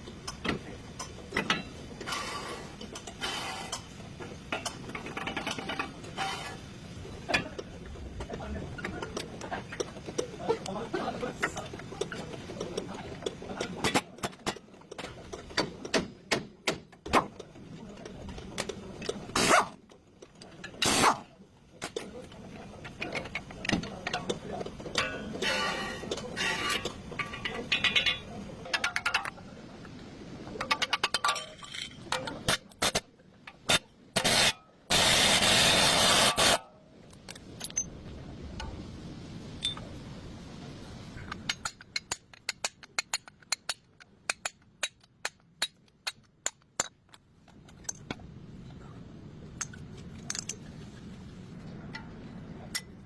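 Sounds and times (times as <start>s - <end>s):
metal tools clinking and scraping: 21.8s - 29.3s, 30.6s - 33.0s, 37.4s - 37.9s
loud burst of noise: 34.2s - 36.6s.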